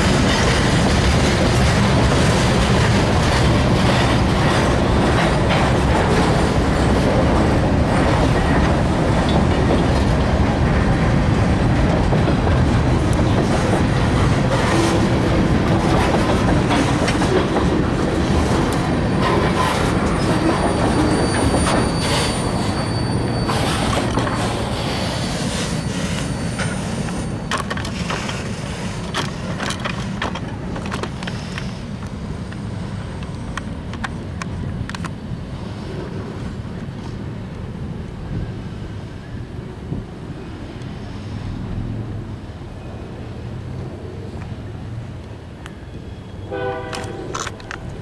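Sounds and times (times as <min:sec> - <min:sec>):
freight train wheels rumbling: 0:00.0 - 0:48.0
faint high wheel squeal: 0:20.1 - 0:27.5, 0:45.7 - 0:47.3.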